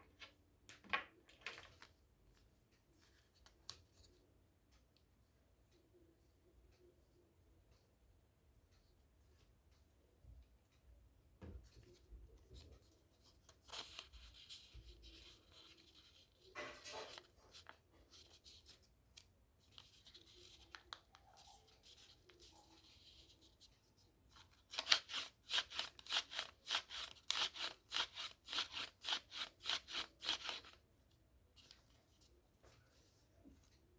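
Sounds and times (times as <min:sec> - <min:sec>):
paper rustling: 0:13.6 - 0:23.5.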